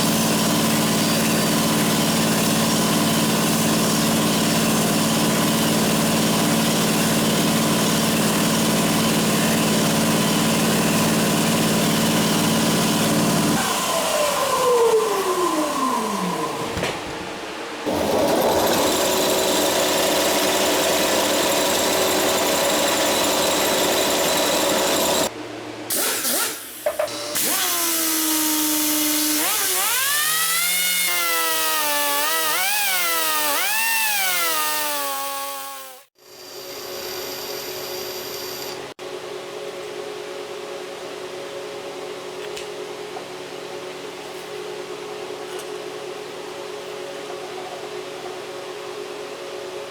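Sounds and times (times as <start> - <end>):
motor whine rising and falling: 12.9 - 25.3, 28.8 - 38.9
machine tool motor winding down: 17.9 - 25.3, 26.2 - 36.1.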